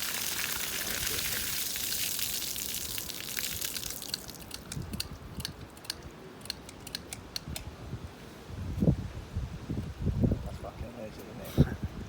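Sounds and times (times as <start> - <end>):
water spraying hiss: 0.0 - 4.4.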